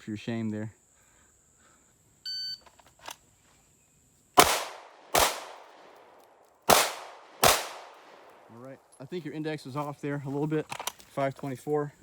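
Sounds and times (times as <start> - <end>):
pistol shots: 4.4 - 6.0, 6.7 - 8.5.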